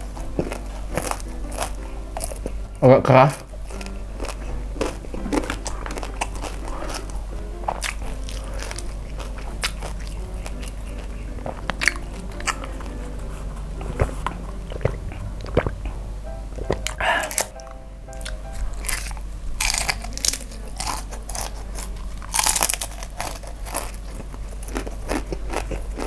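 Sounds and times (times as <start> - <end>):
crisp crunches: 0.0 - 2.5, 3.3 - 13.1, 18.2 - 26.0
person chewing food: 0.0 - 26.0
wet mouth clicks: 14.0 - 15.9.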